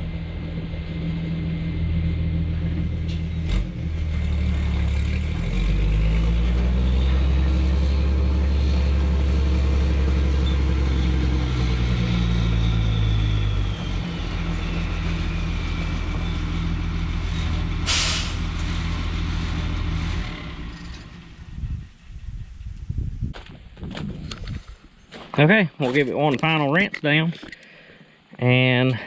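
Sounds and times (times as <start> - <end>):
engine running: 0.0 - 22.8
short sharp hiss: 17.9 - 18.5.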